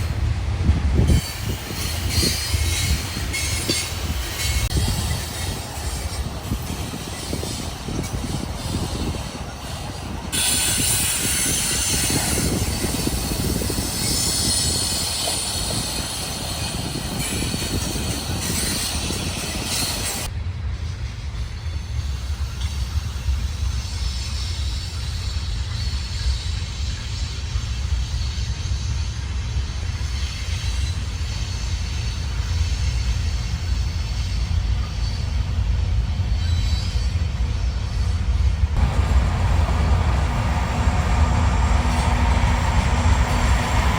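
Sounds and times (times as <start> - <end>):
train wheels rumbling on rails: 0.0 - 43.9
high-pitched wheel squeal: 38.8 - 43.9.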